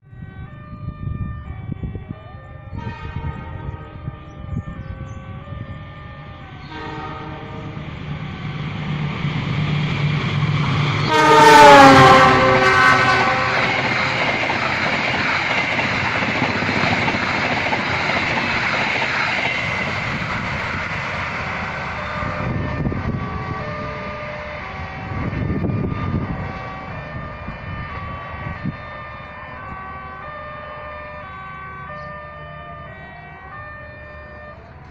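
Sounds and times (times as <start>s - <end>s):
train horn: 0.4s - 8.3s, 11.0s - 14.3s, 21.9s - 34.9s
train rumbling and clattering: 2.8s - 30.3s.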